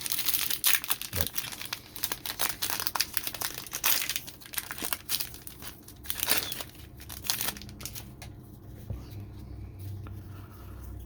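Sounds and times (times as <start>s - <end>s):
plastic wrapper crinkling and tearing: 0.0s - 8.4s.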